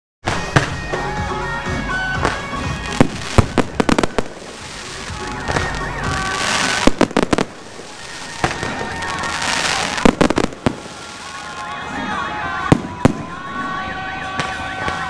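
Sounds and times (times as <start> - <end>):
fireworks bursting bangs: 0.2 - 15.0
hiss of burning stars: 3.0 - 11.6.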